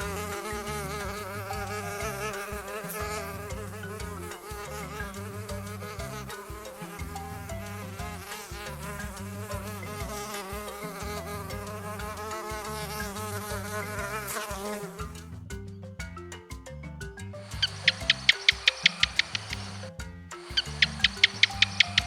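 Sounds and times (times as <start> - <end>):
insects buzzing: 0.0 - 15.2, 17.4 - 22.0.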